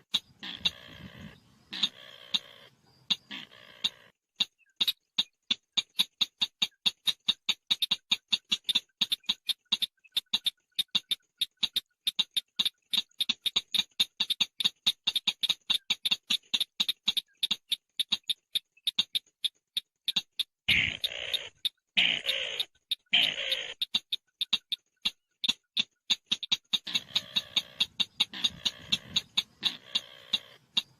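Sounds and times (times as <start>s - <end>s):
bird call of sharp clicking chips: 0.0s - 30.9s.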